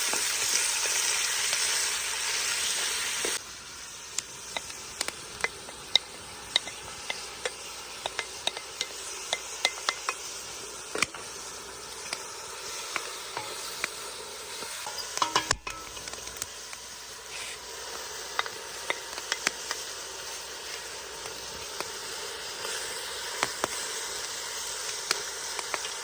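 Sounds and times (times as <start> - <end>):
food sizzling in a pan: 0.0 - 26.0
spoon clicking against pan: 4.2 - 11.3, 14.8 - 16.5, 18.3 - 19.8.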